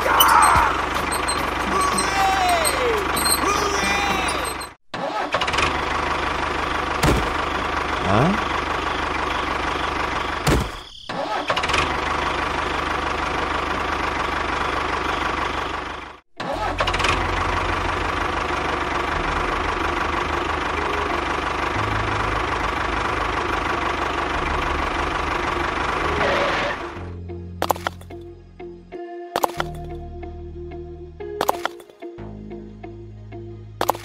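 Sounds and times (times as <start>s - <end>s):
tractor engine chugging: 0.0s - 4.8s, 5.5s - 10.5s, 11.6s - 26.0s.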